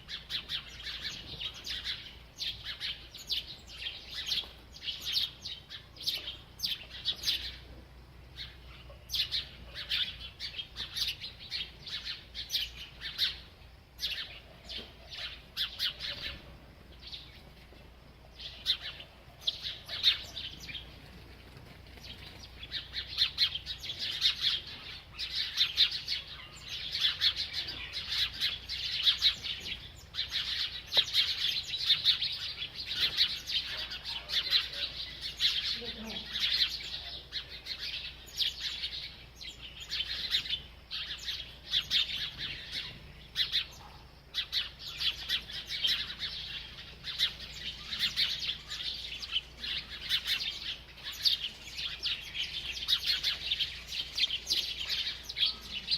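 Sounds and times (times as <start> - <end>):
small bird chirping: 0.0 - 55.9.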